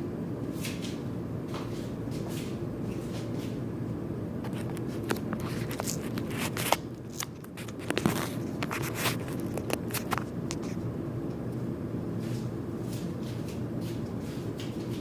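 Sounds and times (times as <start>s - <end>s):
steady low hum: 0.0s - 15.0s
birds scratching and tapping: 4.5s - 10.8s.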